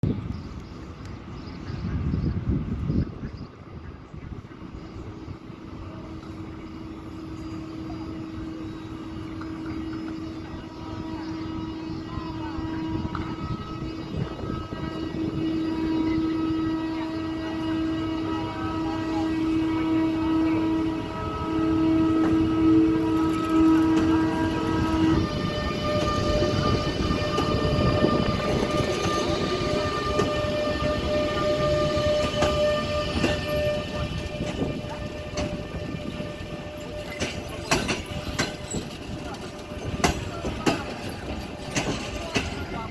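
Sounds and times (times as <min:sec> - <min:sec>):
electric locomotive hum: 0:00.0 - 0:42.9
low locomotive rumble: 0:00.0 - 0:42.9
wheels clicking over rail joints: 0:25.9 - 0:42.9.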